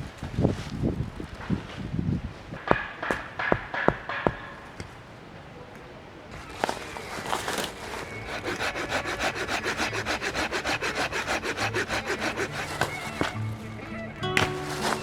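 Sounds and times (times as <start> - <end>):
hand saw cutting wood: 6.3 - 13.7, 14.3 - 15.0.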